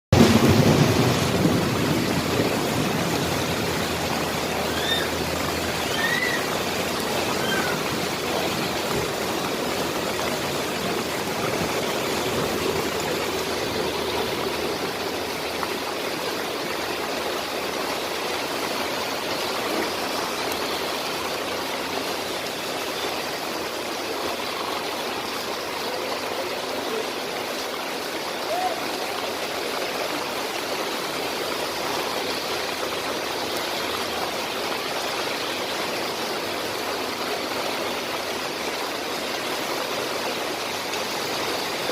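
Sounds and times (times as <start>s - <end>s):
heavy rain on water: 0.0s - 41.9s.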